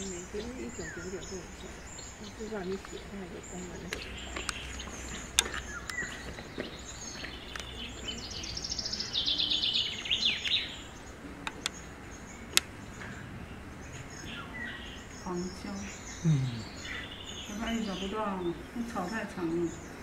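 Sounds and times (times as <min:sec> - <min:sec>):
outdoor background noise: 0:00.0 - 0:20.0
songbird trilling: 0:00.0 - 0:20.0
sharp clicks: 0:03.8 - 0:06.2, 0:07.5 - 0:07.8, 0:11.4 - 0:11.9, 0:12.5 - 0:13.2.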